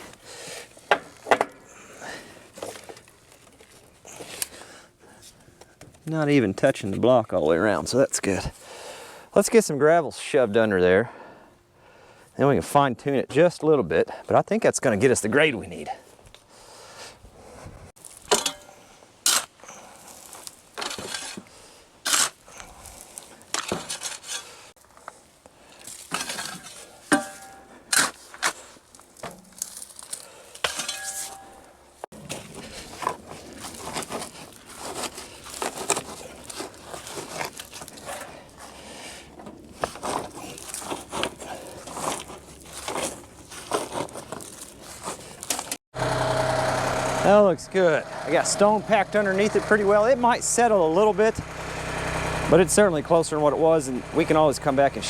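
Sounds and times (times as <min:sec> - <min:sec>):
gravel clinking and scraping: 0:18.0 - 0:45.8.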